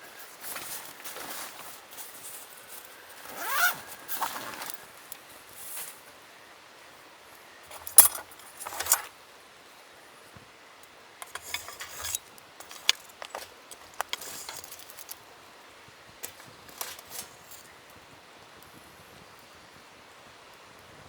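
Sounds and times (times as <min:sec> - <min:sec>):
rustling: 0:00.3 - 0:06.1, 0:07.7 - 0:09.2, 0:11.2 - 0:15.4, 0:16.2 - 0:17.8
light clicks and clinks: 0:07.7 - 0:09.1, 0:10.8 - 0:15.3, 0:16.2 - 0:17.7.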